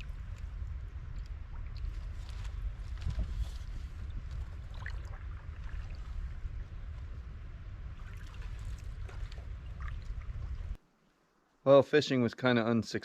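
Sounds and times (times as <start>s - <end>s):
small water drips: 0.0s - 2.1s, 4.3s - 6.4s, 8.0s - 10.8s
water lapping around canoe: 0.0s - 7.2s, 7.8s - 10.8s
steady low rumble: 0.0s - 10.8s.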